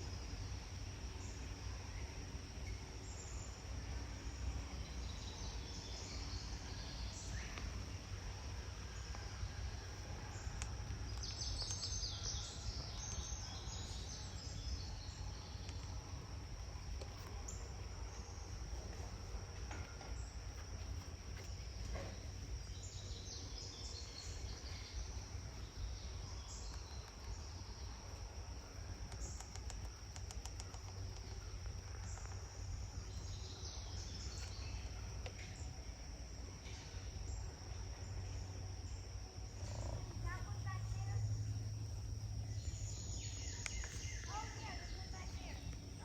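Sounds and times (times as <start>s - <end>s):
insects buzzing: 0.0s - 46.0s
low background noise: 0.0s - 46.0s
bird chirps: 42.4s - 46.0s.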